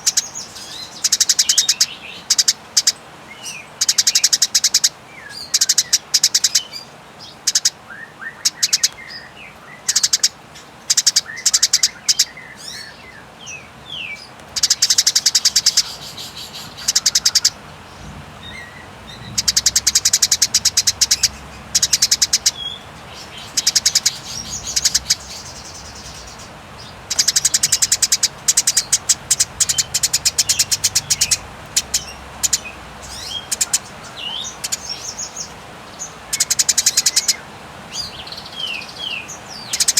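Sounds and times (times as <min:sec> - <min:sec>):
sparrow chattering rattles: 0:00.0 - 0:03.0, 0:09.9 - 0:10.3, 0:10.9 - 0:12.8, 0:14.6 - 0:35.5, 0:36.3 - 0:37.4, 0:39.5 - 0:39.9
sparrow short chirps: 0:14.6 - 0:17.6, 0:18.5 - 0:35.5.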